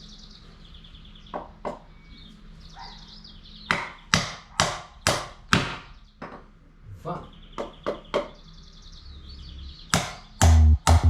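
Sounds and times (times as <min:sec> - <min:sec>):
hammer hitting nail into wood: 0:03.7 - 0:05.9, 0:10.0 - 0:11.0.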